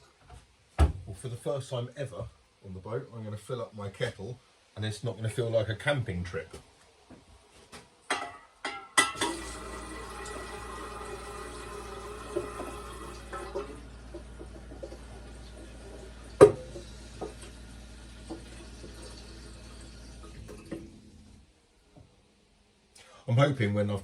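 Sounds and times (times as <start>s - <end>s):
tap water filling a kettle: 9.0s - 21.4s.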